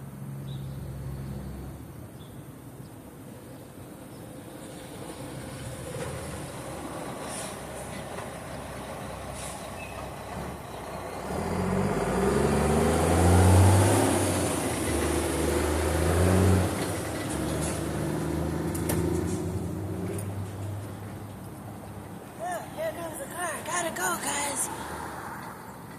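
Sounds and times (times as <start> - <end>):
heavy vehicle engine passing: 4.8 - 25.8.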